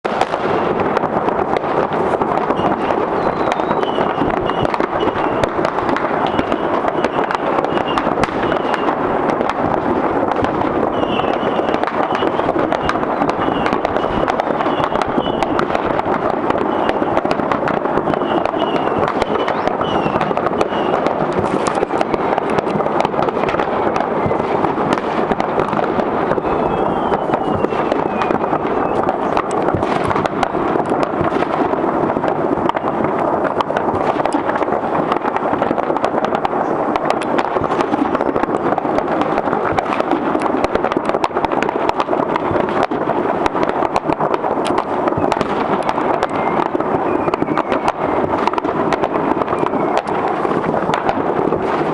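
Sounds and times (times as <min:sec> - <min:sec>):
fireworks bangs and pops: 0:00.0 - 0:51.9
high falling whistle: 0:26.3 - 0:29.0.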